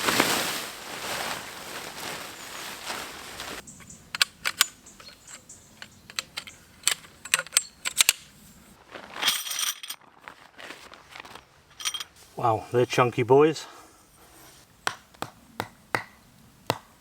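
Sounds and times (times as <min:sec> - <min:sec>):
metal tent pegs clinking: 0:03.6 - 0:08.4, 0:09.2 - 0:10.0, 0:11.7 - 0:12.2.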